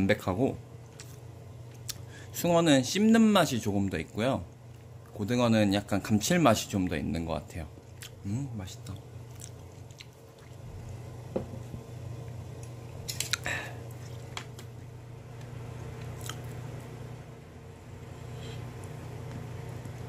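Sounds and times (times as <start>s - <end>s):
chewing and mouth sounds: 7.7s - 14.7s, 15.7s - 16.9s
low hum: 7.7s - 20.0s.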